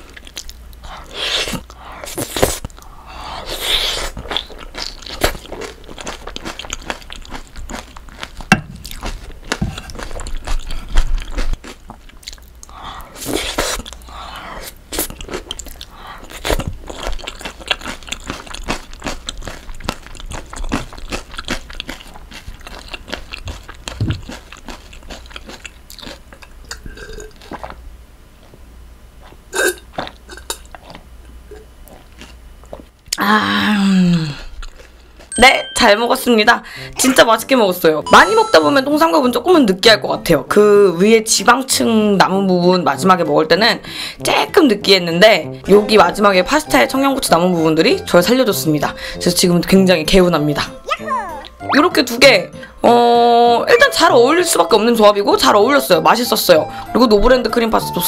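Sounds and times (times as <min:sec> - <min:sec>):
close chewing and mouth sounds: 0:00.0 - 0:27.8, 0:29.2 - 0:33.2, 0:34.4 - 0:35.4.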